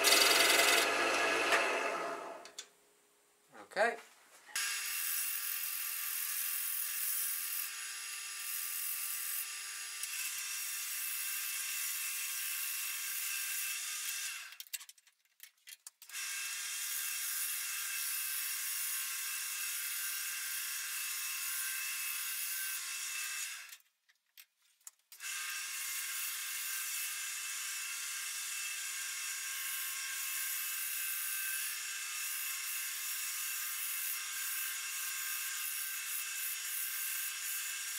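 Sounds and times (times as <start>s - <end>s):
lathe motor hum: 0.0s - 2.5s
wood rubbing on lathe: 0.0s - 2.5s.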